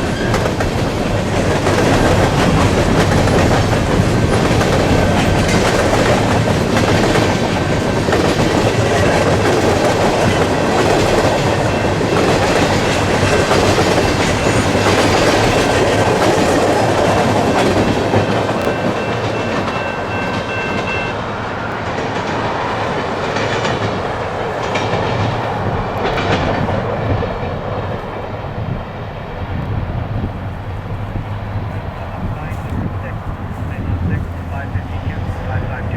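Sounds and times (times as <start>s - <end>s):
wheels clicking over rail joints: 0.0s - 28.2s
freight train rumble: 0.0s - 35.9s
faint high wheel ringing: 18.5s - 21.6s.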